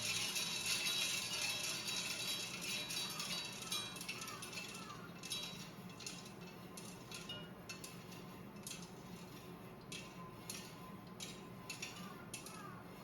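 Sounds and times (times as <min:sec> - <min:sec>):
coffee beans cracking: 0:00.0 - 0:08.0, 0:10.0 - 0:12.8
roaster low hum: 0:00.0 - 0:13.0.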